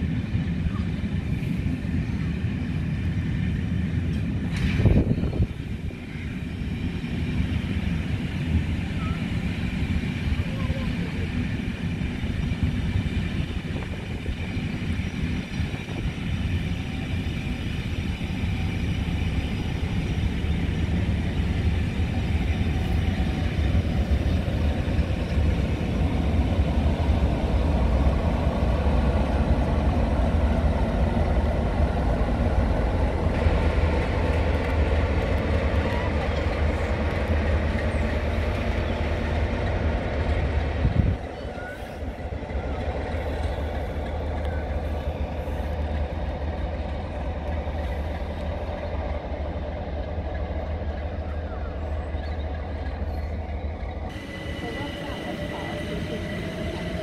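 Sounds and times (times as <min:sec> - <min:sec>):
diesel locomotive engine: 0:00.0 - 0:57.0
train coaches rumbling on rails: 0:00.0 - 0:57.0.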